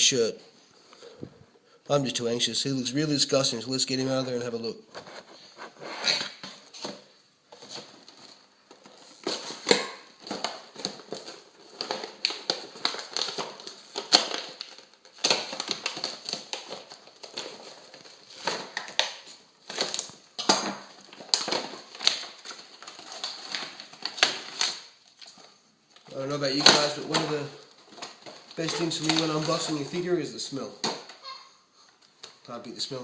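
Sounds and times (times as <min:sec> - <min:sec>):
clicks and rustles: 0:04.9 - 0:30.0
packaging crinkling: 0:06.1 - 0:32.5.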